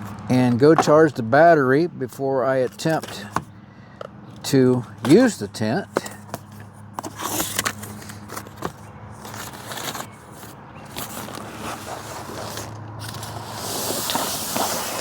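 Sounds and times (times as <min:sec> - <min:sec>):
rustling: 0:07.0 - 0:15.0.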